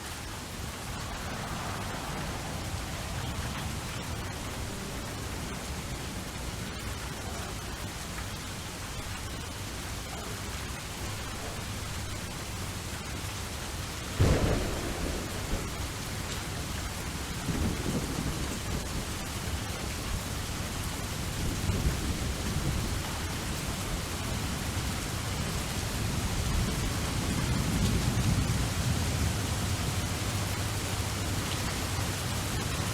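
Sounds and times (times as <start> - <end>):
steady rain: 0.0 - 32.9
rolling thunder rumbles: 14.0 - 32.9
thunder clap: 14.2 - 19.1.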